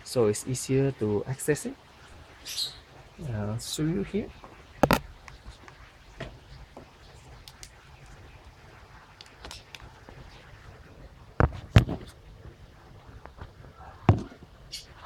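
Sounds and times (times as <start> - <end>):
sharp knocks: 4.8 - 5.0
handling clicks and rustles: 4.8 - 6.5.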